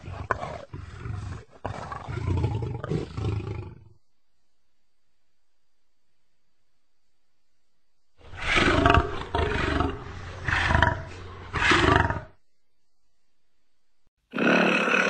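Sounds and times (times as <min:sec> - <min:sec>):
lion roaring: 0:00.0 - 0:04.0, 0:08.2 - 0:12.4.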